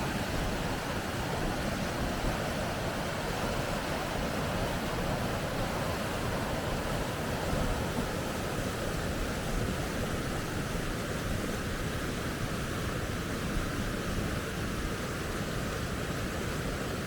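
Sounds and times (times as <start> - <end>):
river rapids rushing: 0.0 - 9.6.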